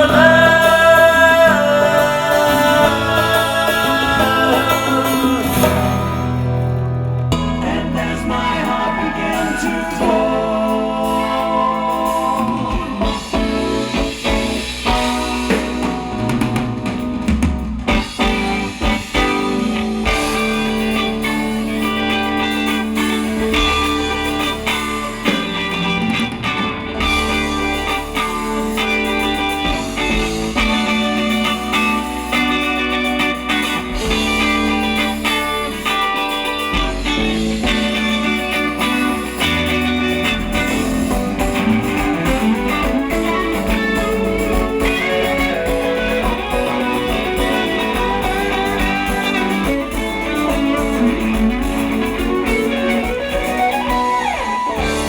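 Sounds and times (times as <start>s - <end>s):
electric guitar: 0.0s - 55.0s
rock band playing: 0.0s - 55.0s.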